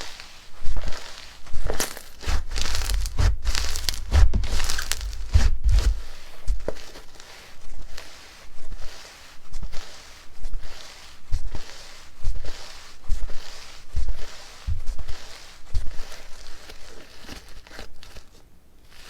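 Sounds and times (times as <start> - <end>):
hands squishing slime: 0.8 - 8.1
low thumps: 2.2 - 6.8, 14.7 - 15.0.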